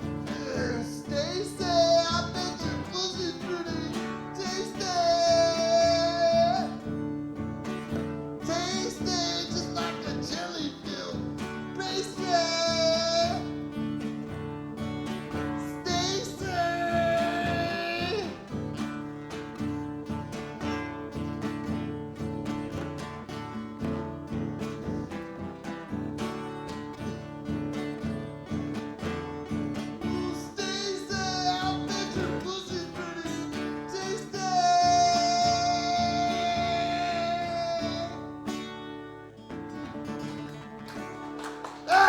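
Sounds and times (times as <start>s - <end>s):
high singing voice: 0.0s - 14.1s, 15.2s - 18.8s, 29.0s - 38.8s, 41.7s - 42.0s
strummed acoustic guitar: 0.0s - 42.0s.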